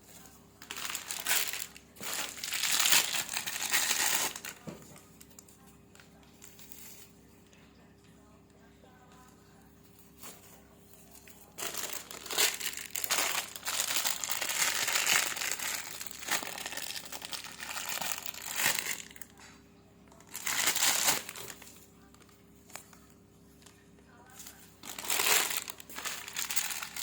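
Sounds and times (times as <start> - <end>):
packaging crinkling: 0.6 - 5.4, 11.6 - 19.4, 20.2 - 27.0.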